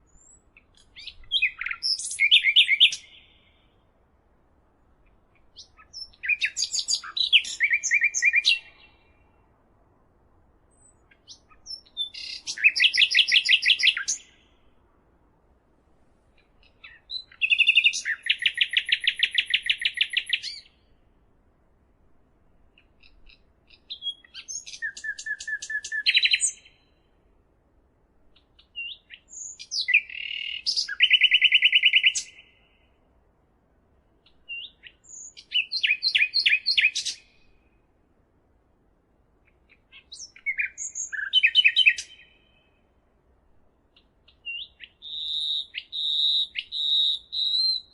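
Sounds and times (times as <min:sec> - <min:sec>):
songbird trilling: 0:00.1 - 0:03.5, 0:05.6 - 0:09.0, 0:10.8 - 0:14.5, 0:16.6 - 0:20.7, 0:22.9 - 0:26.9, 0:28.6 - 0:32.5, 0:34.3 - 0:37.4, 0:39.7 - 0:42.7, 0:44.3 - 0:47.9.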